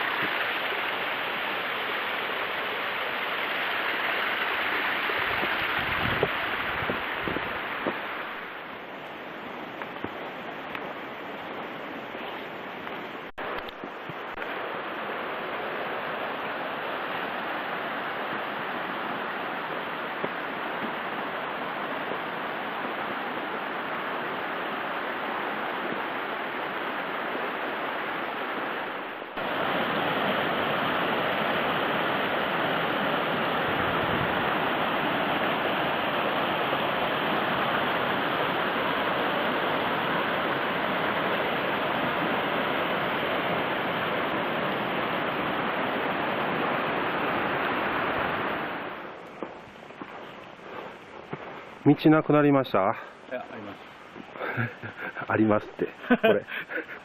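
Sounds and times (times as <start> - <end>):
steady rushing noise: 0.0 - 57.0.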